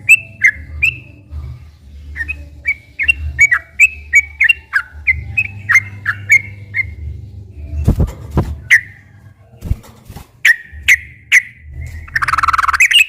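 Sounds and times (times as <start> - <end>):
bird singing whistled chirps: 0.0 - 1.1, 2.2 - 7.0, 10.4 - 13.0
low steady hum: 0.0 - 13.0.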